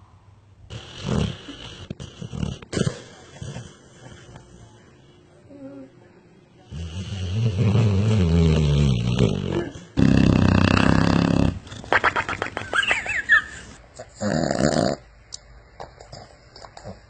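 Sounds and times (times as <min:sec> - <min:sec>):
dog snoring: 0:00.7 - 0:04.2, 0:06.7 - 0:11.6, 0:14.2 - 0:15.0.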